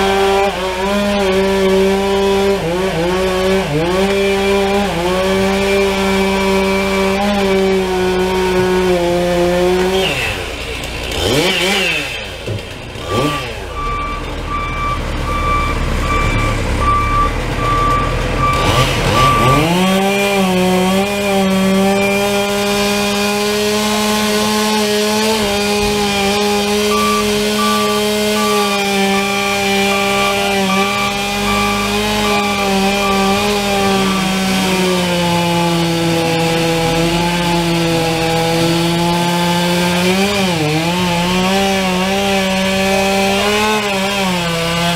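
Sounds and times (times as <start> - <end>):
chainsaw revving and cutting: 0.0 - 44.9
intermittent beep: 13.8 - 19.7, 26.9 - 33.4.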